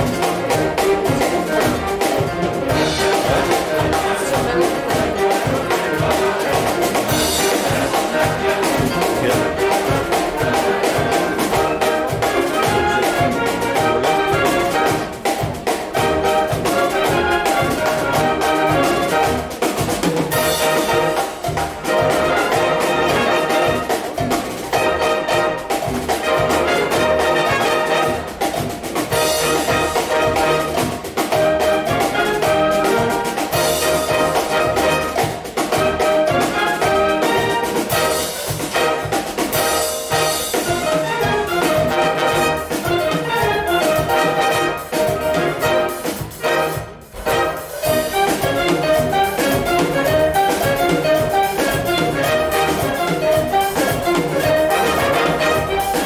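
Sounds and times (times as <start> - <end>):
concert wind band playing: 0.0 - 56.0.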